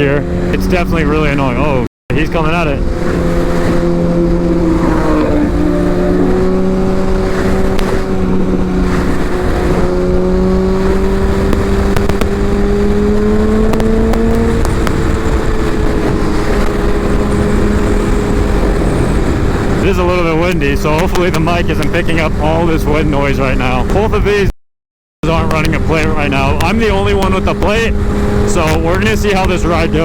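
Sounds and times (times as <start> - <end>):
motorcycle engine cruising: 0.0 - 24.4, 25.2 - 30.0
wind noise on microphone: 2.6 - 24.3, 25.3 - 30.0.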